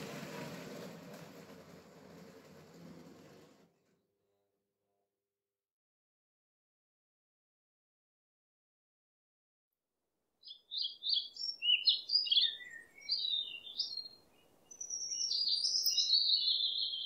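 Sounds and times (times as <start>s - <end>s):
songbird singing: 10.4s - 17.0s.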